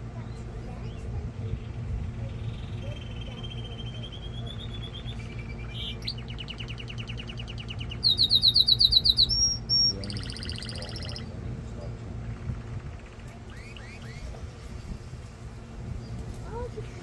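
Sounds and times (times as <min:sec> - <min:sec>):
canary trilling: 0:02.2 - 0:11.3, 0:12.8 - 0:14.3.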